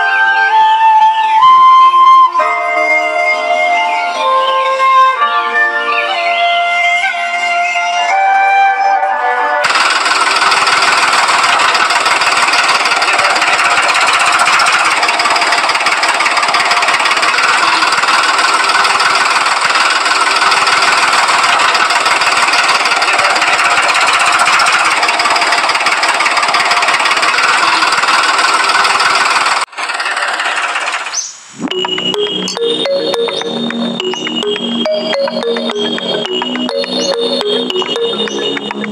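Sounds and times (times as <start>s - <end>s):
diesel water pump knocking: 9.7s - 31.1s, 33.0s - 38.9s.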